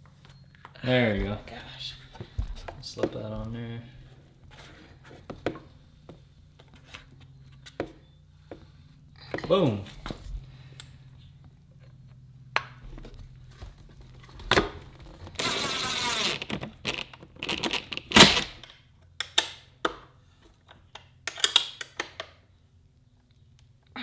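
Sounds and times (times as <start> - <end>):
rattling whirr: 13.5 - 18.6.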